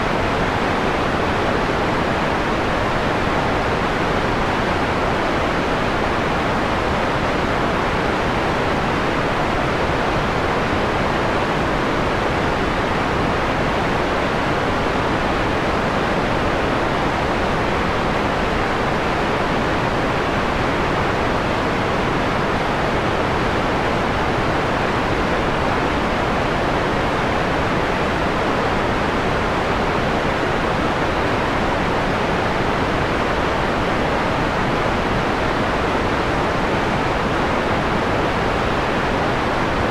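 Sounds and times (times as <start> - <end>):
soft mellow white noise hiss: 0.0 - 39.9.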